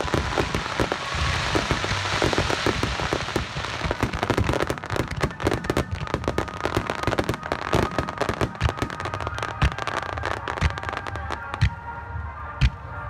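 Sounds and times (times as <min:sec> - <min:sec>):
fireworks booms: 0:00.0 - 0:11.8
fireworks crackling: 0:00.0 - 0:11.9.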